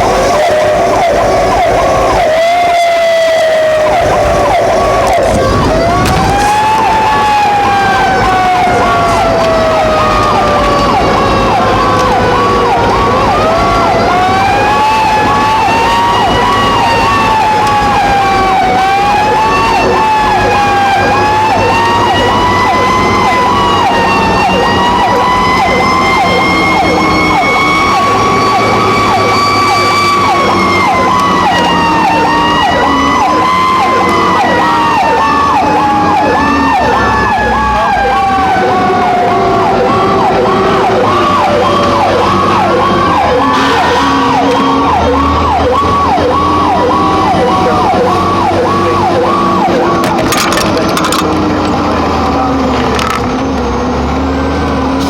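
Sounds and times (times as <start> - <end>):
siren wailing: 0.0 - 55.0
siren yelping: 0.0 - 55.0
truck engine: 0.0 - 55.0.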